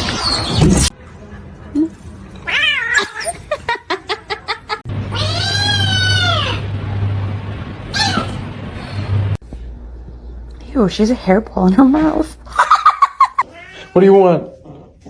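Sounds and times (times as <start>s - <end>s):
cat meowing: 2.4s - 3.4s, 5.1s - 6.6s, 13.4s - 14.2s
cat yowling: 2.4s - 3.4s, 5.1s - 6.7s, 7.9s - 8.4s, 13.4s - 14.2s.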